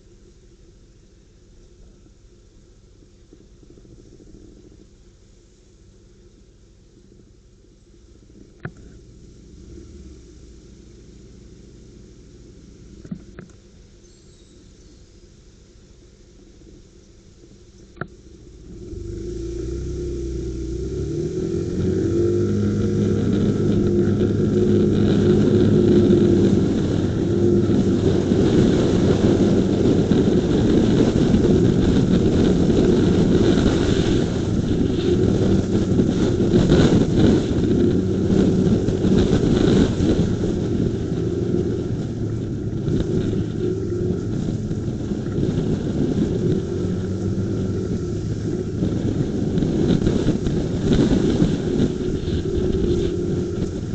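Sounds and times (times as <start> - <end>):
motorcycle engine accelerating: 0.0 - 15.2, 16.4 - 53.9
wind rushing over microphone: 17.9 - 53.9.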